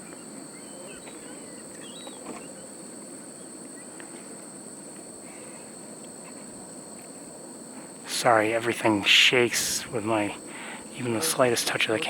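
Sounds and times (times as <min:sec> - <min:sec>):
bird chirps: 0:00.0 - 0:02.8
insects trilling: 0:00.0 - 0:12.0.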